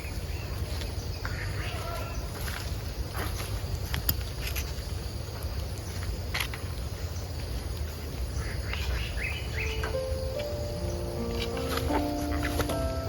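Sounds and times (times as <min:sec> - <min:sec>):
background music with held notes: 0:09.6 - 0:13.0.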